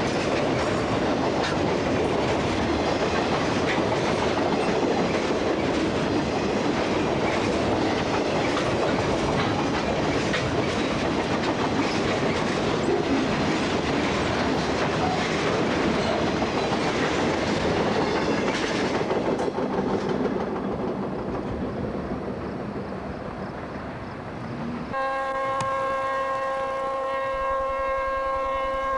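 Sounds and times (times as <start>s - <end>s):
train wheels clickety-clack: 0.0s - 24.0s
train horn chord: 24.9s - 28.9s.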